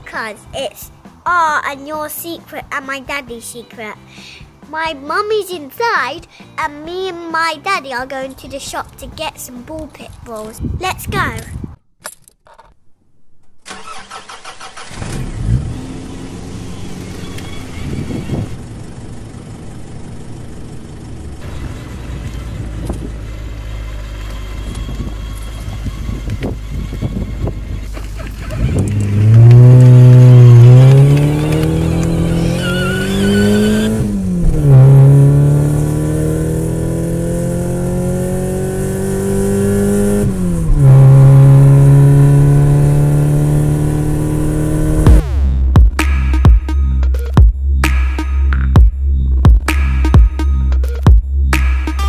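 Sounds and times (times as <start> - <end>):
car engine accelerating: 14.2 - 52.0.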